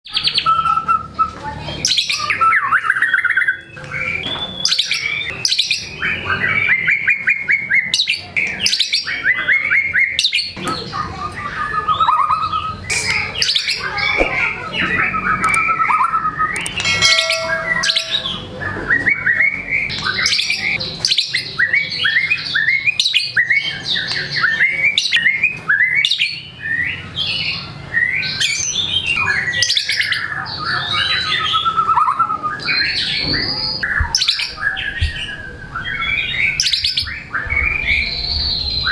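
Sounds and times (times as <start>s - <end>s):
songbird whistles and trills: 0.1s - 10.4s, 11.6s - 20.8s.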